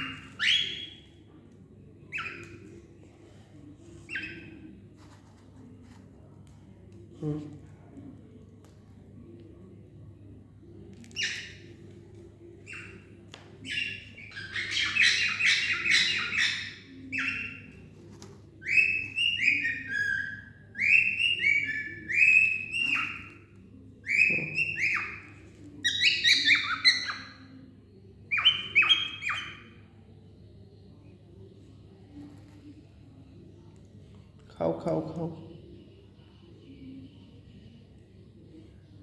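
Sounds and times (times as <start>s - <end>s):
cockatiel chirping: 0.0s - 1.1s, 2.1s - 2.7s, 4.1s - 4.7s, 11.0s - 11.8s, 12.6s - 17.9s, 18.6s - 27.5s, 28.3s - 29.8s.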